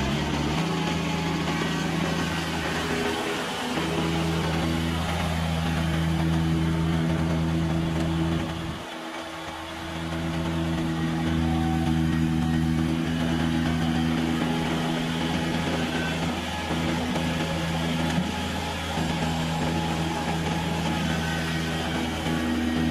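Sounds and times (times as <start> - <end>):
tractor engine running: 0.0 - 22.9.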